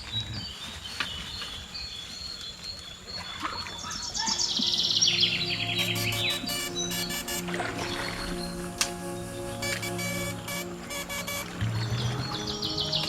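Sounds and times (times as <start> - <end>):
insect tone: 4.5 - 12.8
background music: 4.6 - 13.0.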